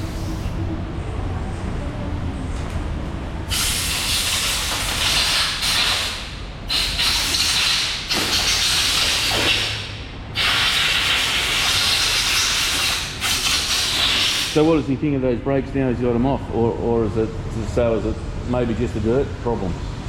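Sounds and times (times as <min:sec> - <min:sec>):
compressed air blow gun hissing: 0:03.5 - 0:14.6.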